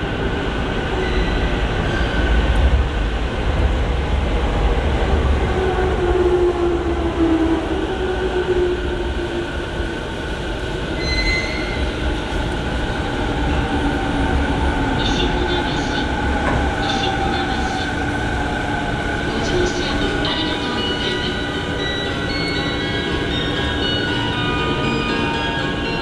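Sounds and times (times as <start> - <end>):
train heavy low rumble: 0.0 - 26.0
brief high brake squeal: 11.0 - 11.8.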